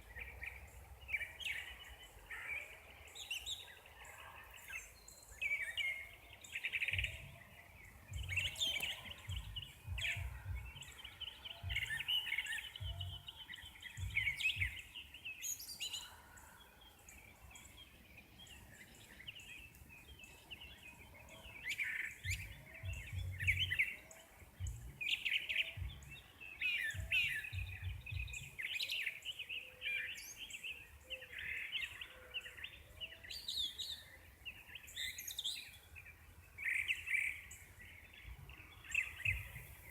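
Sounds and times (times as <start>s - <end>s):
birds singing and chirping: 0.0s - 39.9s
low rumbles: 8.1s - 8.4s, 9.3s - 10.8s.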